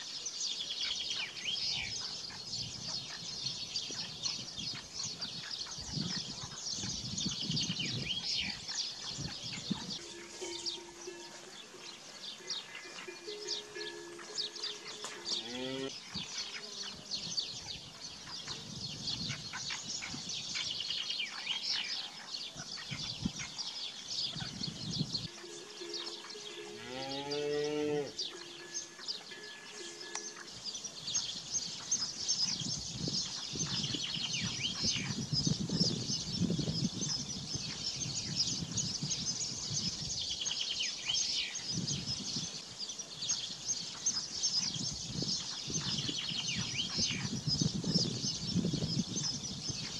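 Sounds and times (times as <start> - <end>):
small birds chirping: 0.0 - 49.9
cow mooing: 13.5 - 15.9, 25.4 - 30.3.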